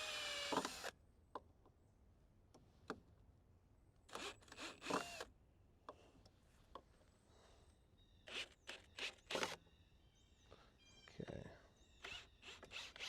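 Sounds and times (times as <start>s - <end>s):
power drill motor whine: 0.0s - 0.9s.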